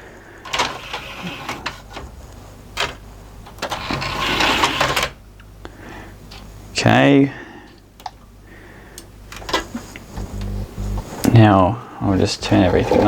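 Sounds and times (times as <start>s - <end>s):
small motor mechanism whirring: 10.2s - 11.1s.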